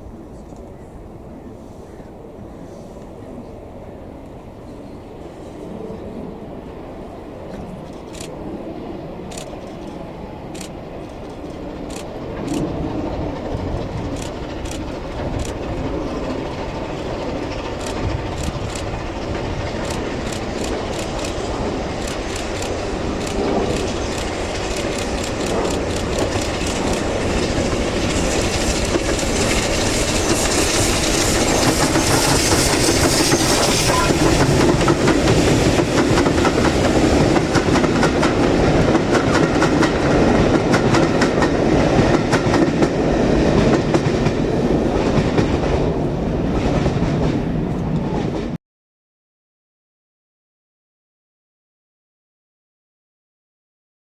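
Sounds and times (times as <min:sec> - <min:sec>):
train rumbling past: 0:00.0 - 0:48.6
wheels clicking over rail joints: 0:09.3 - 0:48.6.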